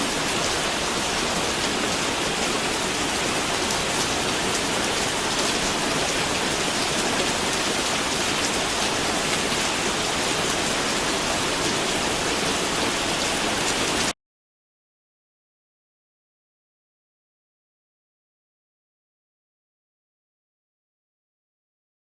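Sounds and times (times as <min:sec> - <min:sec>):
steady rain falling: 0:00.0 - 0:14.2.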